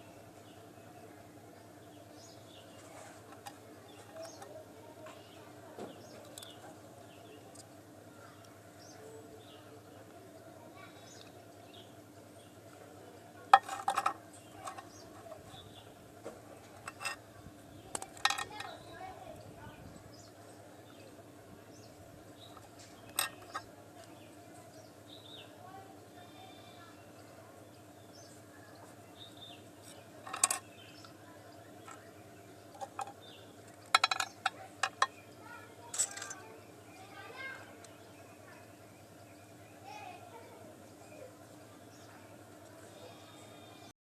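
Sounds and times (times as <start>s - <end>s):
faint background hum: 0.0s - 44.0s
small hard parts clattering: 2.8s - 5.2s, 13.5s - 15.6s, 16.6s - 17.2s, 17.8s - 18.8s, 22.5s - 23.7s, 29.8s - 31.1s, 32.7s - 35.2s, 35.8s - 36.5s.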